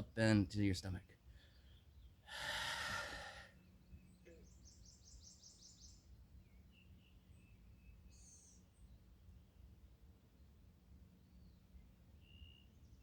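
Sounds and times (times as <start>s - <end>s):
person breathing out forcefully: 2.3s - 3.5s.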